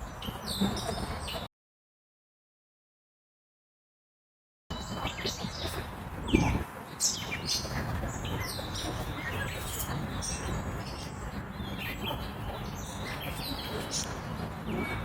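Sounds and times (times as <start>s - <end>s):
birds chirping: 0.0s - 1.5s, 4.7s - 15.0s.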